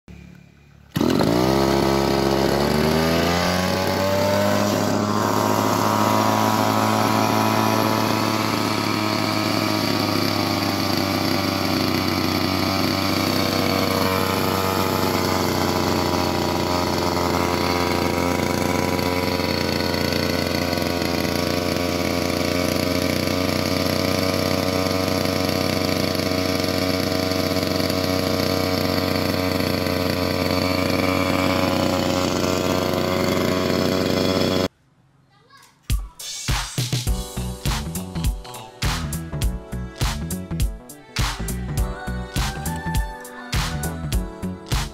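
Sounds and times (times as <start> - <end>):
small two-stroke engine running: 0.1 - 34.7.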